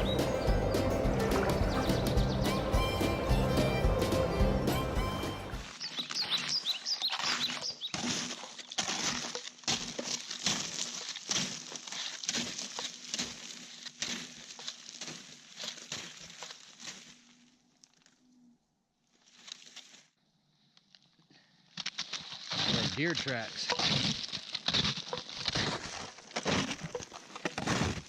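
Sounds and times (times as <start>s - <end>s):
short high chirps: 0.0s - 5.7s
footsteps in woods: 0.0s - 18.3s, 19.0s - 20.2s, 20.8s - 28.0s.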